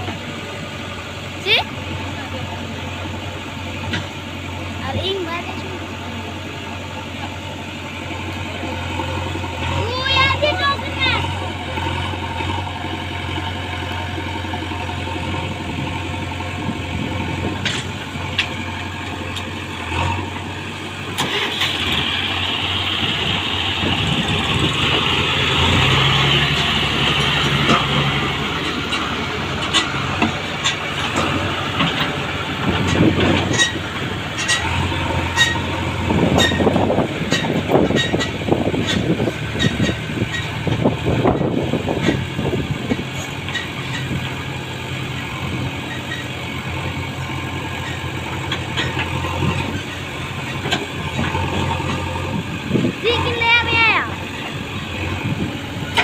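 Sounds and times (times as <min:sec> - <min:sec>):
heavy diesel machinery running: 0:00.0 - 0:56.0
sharp knocks and clatter: 0:17.6 - 0:19.5, 0:26.4 - 0:44.4, 0:47.7 - 0:52.3.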